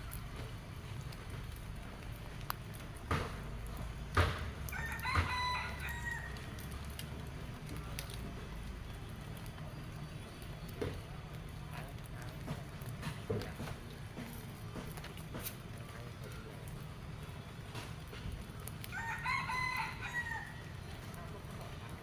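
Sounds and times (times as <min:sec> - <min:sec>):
rooster crowing: 0:04.7 - 0:06.5, 0:18.9 - 0:20.7.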